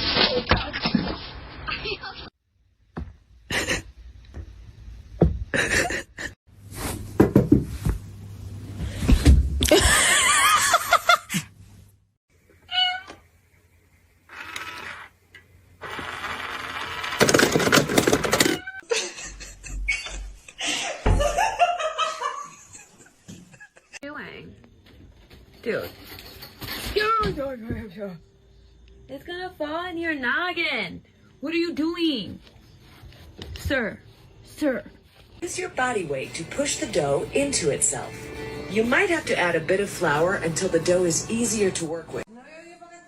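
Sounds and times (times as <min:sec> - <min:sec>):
knocks and bumps: 0:04.4 - 0:05.8, 0:21.0 - 0:21.6.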